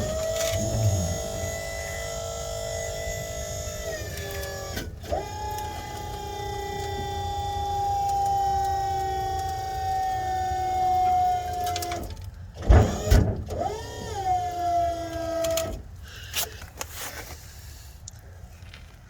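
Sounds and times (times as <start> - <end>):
hydraulic pump motor whining: 0.0 - 12.0.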